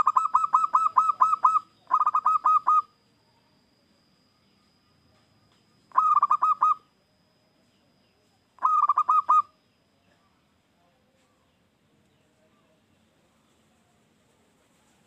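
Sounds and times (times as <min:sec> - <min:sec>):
dove cooing: 0:00.0 - 0:03.0, 0:05.9 - 0:06.8, 0:08.6 - 0:09.5.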